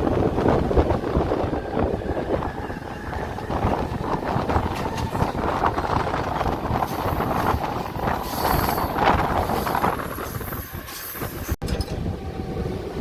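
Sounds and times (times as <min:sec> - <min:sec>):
train rumbling and rattling: 0:00.0 - 0:13.0
high wheel squeal: 0:08.0 - 0:11.6.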